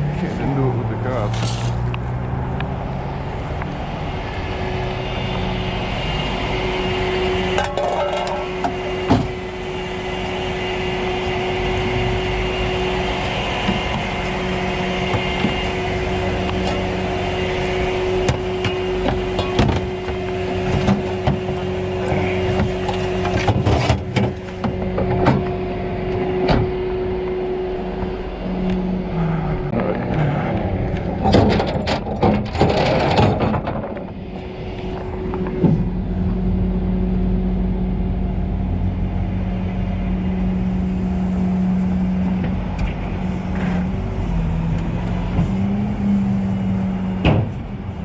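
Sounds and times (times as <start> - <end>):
vehicle engine humming: 0.0 - 48.0
knocks and clanks: 7.5 - 9.4, 18.2 - 25.6, 30.9 - 34.2.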